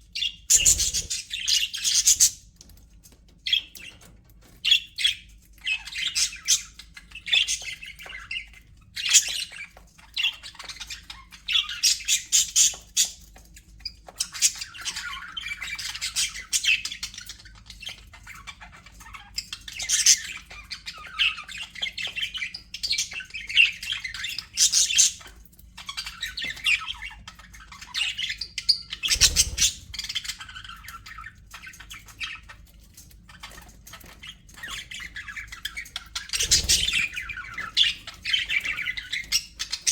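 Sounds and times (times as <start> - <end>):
budgerigars chattering: 0.2 - 2.4, 27.8 - 32.4, 33.4 - 39.9.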